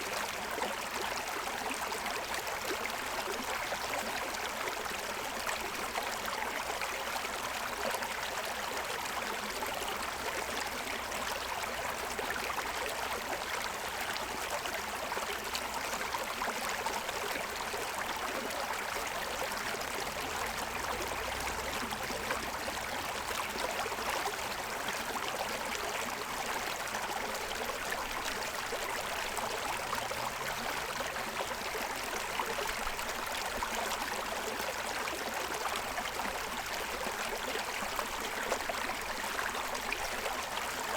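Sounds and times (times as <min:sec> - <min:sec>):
stream splashing over stones: 0:15.8 - 0:40.9.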